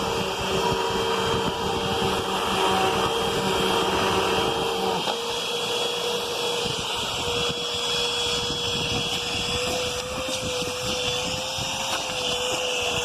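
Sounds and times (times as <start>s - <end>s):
vacuum cleaner motor whine: 0.0s - 13.0s.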